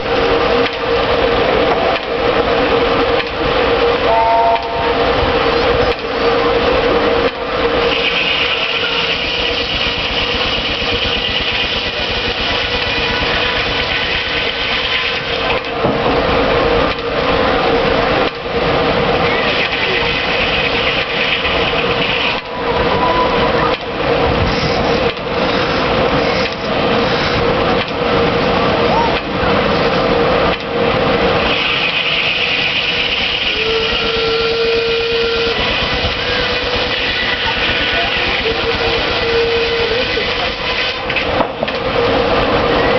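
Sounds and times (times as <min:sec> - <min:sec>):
sawmill running: 0:00.0 - 0:42.9
clear steady tone: 0:04.1 - 0:05.0.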